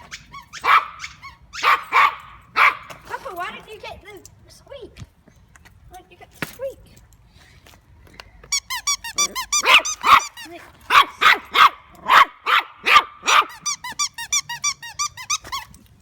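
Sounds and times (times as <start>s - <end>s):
squeaky toy squeaking: 0.0s - 2.1s, 8.5s - 11.7s, 13.2s - 15.8s
dog barking: 0.5s - 2.9s, 9.6s - 13.6s.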